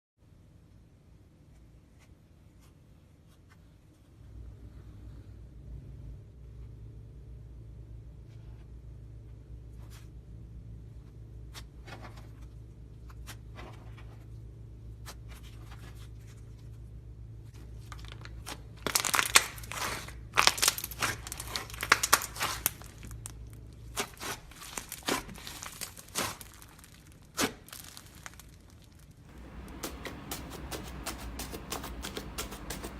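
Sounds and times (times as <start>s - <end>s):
slime squishing and popping: 18.2s - 29.1s
low hum: 29.3s - 32.9s.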